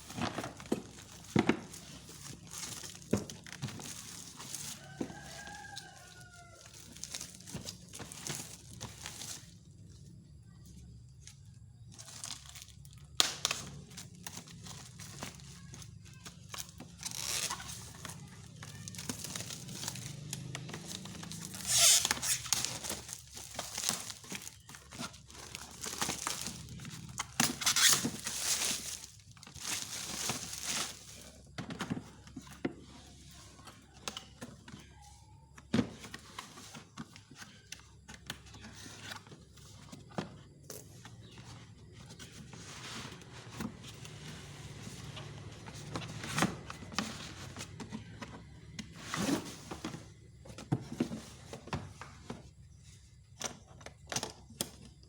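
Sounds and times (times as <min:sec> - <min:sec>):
packaging crinkling and rustling: 0:00.0 - 0:09.7, 0:11.9 - 0:32.2.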